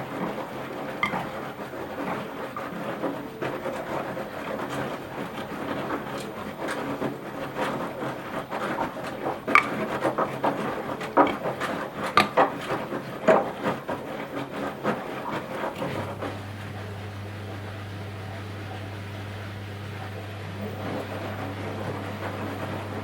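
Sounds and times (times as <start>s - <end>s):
washing machine drum rushing: 15.0s - 23.0s.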